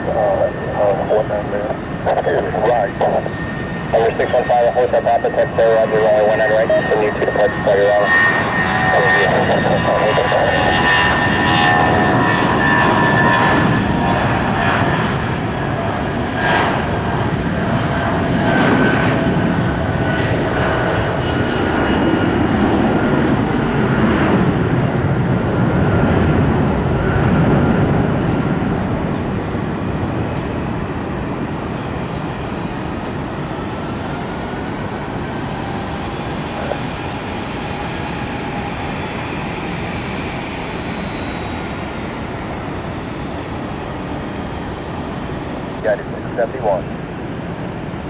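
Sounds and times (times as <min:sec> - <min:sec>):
jet engines whining: 0:00.0 - 0:48.0.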